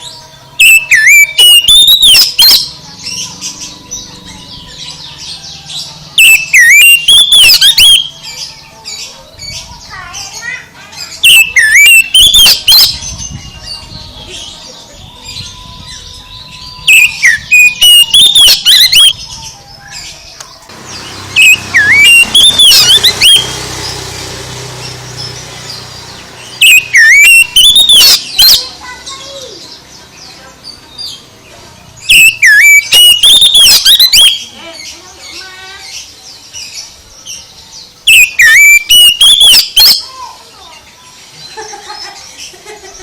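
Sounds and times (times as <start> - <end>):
bird singing loudly: 0.0 - 40.8.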